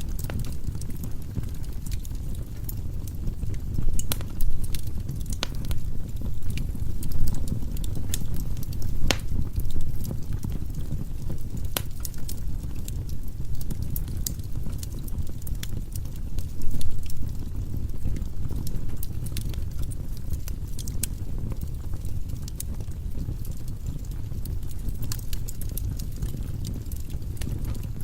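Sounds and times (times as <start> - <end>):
wood fire crackling and popping: 0.0 - 28.0.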